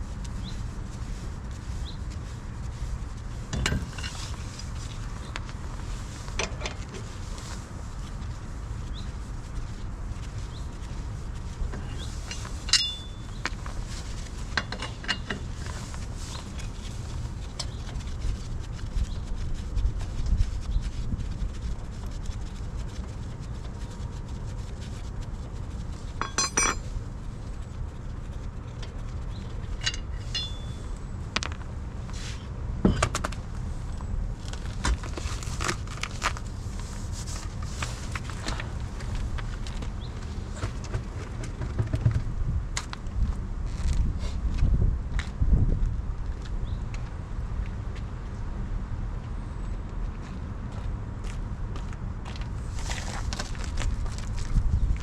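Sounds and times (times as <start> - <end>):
steady low rumble: 0.0 - 41.4, 42.0 - 55.0
metallic clinks and knocks: 12.4 - 13.2, 26.2 - 26.9, 29.8 - 30.8.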